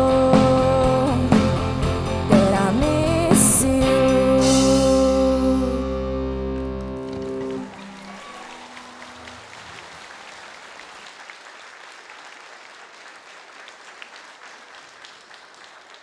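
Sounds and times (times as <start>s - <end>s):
held guitar and bass notes: 0.0s - 9.6s
audience applauding: 6.5s - 16.0s.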